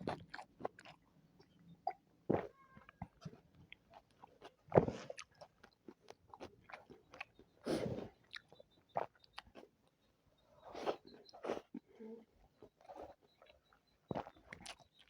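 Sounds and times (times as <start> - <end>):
wet chewing and biting: 0.0 - 1.0, 12.8 - 15.0.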